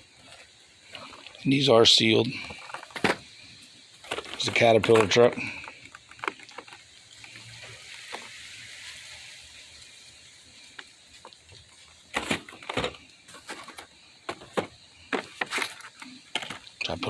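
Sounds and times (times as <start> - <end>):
boxes knocking and scraping: 2.4 - 3.3, 4.0 - 6.8, 12.1 - 16.7
packaging rustling: 2.5 - 3.3, 4.0 - 8.4, 12.1 - 16.8.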